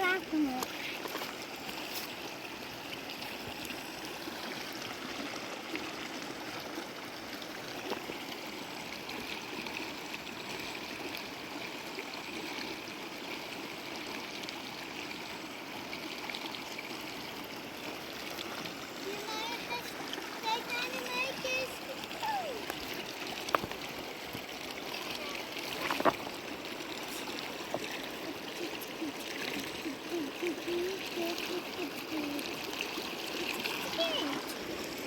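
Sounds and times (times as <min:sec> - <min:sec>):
river water flowing: 0:00.0 - 0:35.0.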